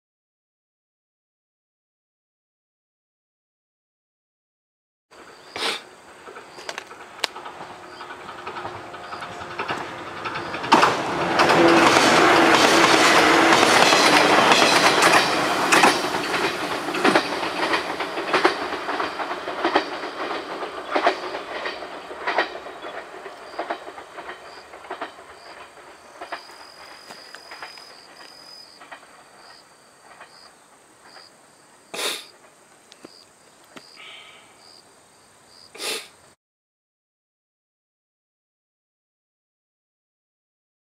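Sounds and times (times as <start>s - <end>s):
electric train passing: 5.1s - 33.4s
wheels clacking over rail joints: 5.2s - 34.0s.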